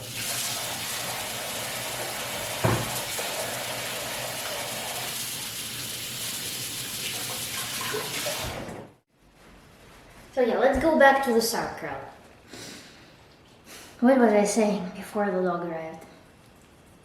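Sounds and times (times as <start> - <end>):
hands washing: 0.0 - 8.8
tap water running into sink: 0.0 - 8.8
knock: 2.6 - 3.0.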